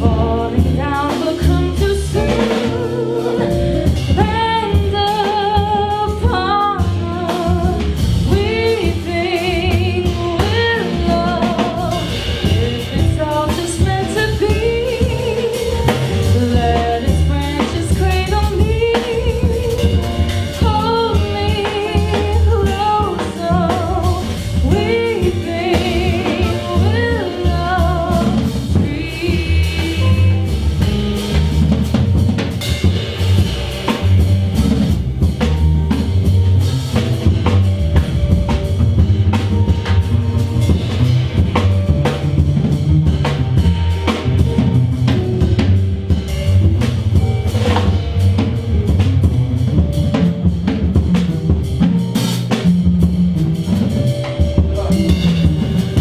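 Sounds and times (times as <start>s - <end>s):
person singing: 0.0s - 7.5s
jazz band playing: 0.0s - 56.0s.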